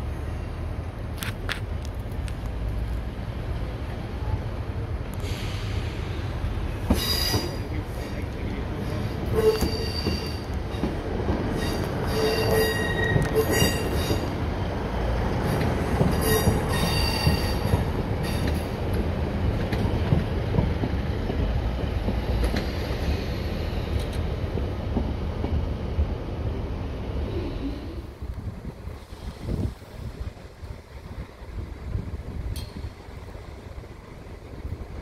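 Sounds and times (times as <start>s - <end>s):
train engine rumble: 0.0s - 35.0s
wheels squealing: 9.4s - 10.5s, 11.5s - 14.3s.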